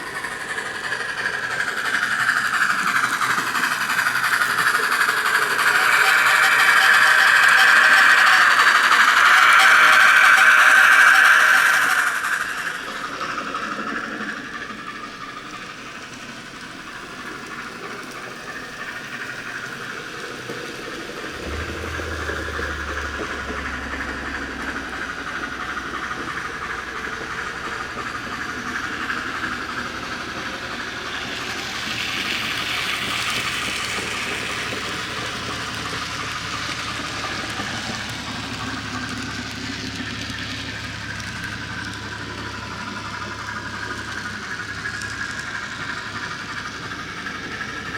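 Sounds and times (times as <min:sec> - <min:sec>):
model train running: 0:00.0 - 0:47.9
low hum: 0:21.2 - 0:28.5.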